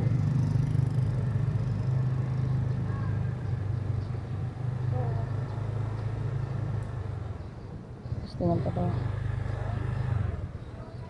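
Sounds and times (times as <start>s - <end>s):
motorcycle engine idling: 0.0s - 7.6s
faint voices: 2.2s - 3.8s, 4.8s - 5.7s.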